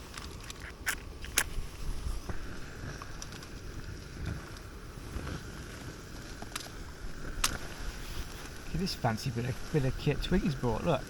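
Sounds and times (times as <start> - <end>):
faint steady hiss: 0.0 - 11.0
wind buffeting microphone: 1.0 - 11.0.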